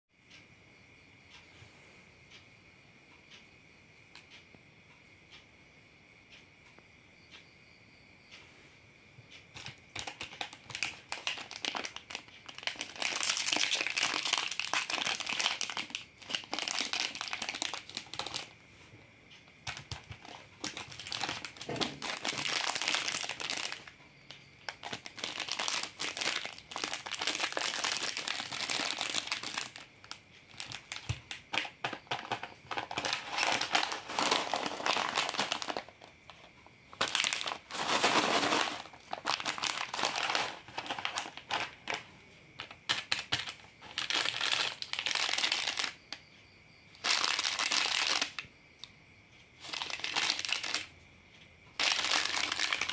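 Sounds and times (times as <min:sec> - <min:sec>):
plastic wrappers crinkling: 0:09.6 - 0:18.5, 0:19.5 - 0:24.0, 0:24.6 - 0:46.0, 0:47.0 - 0:48.5, 0:49.6 - 0:50.9, 0:51.8 - 0:52.9.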